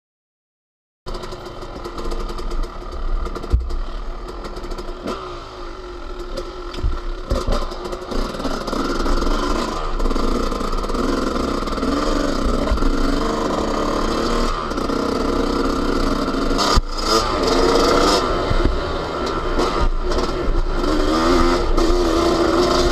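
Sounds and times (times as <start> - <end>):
motocross engine revving: 1.1 - 22.9.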